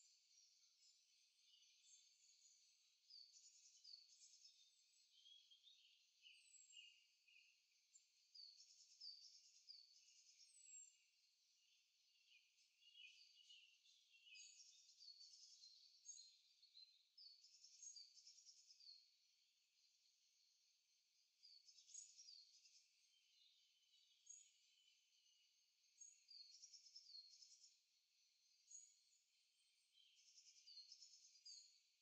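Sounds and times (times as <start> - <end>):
faint birdsong: 0.0 - 32.0.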